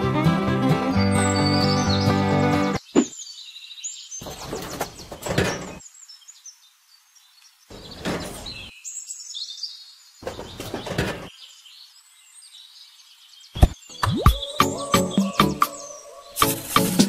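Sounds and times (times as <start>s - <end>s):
music: 0.0s - 2.8s, 14.0s - 17.0s
bird chirping: 0.9s - 17.0s.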